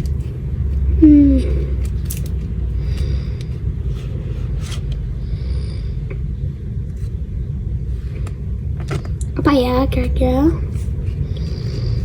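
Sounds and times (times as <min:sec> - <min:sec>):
steady low rumble: 0:00.0 - 0:12.0
trading cards being handled: 0:01.4 - 0:05.0.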